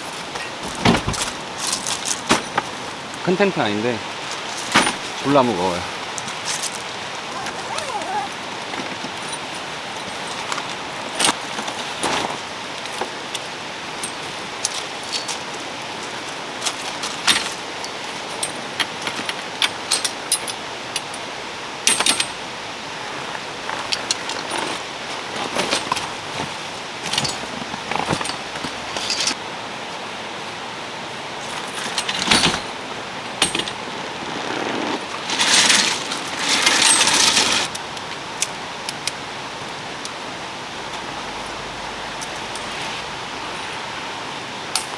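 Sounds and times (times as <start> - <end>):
tent gear clinking and knocking: 0.0 - 29.4, 31.4 - 39.2
rustle: 0.0 - 44.9
rain hissing: 28.8 - 44.8.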